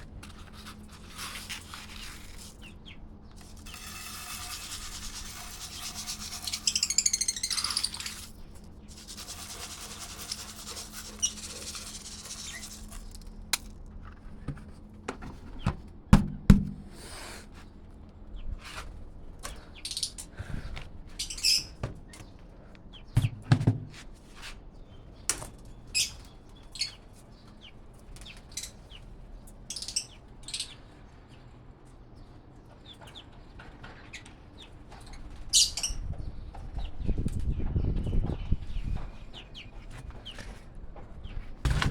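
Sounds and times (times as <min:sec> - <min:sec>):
parrots chirping: 0:05.7 - 0:08.3.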